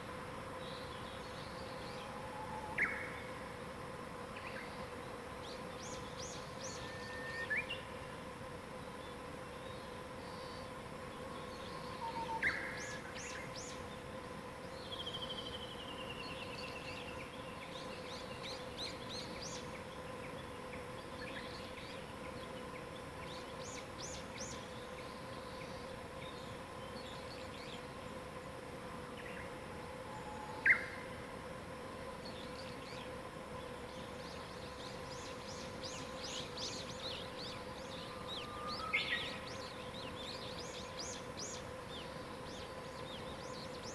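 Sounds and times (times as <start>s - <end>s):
faint hum: 0.0s - 43.9s
wild birds chirping: 9.0s - 31.2s, 32.0s - 43.9s.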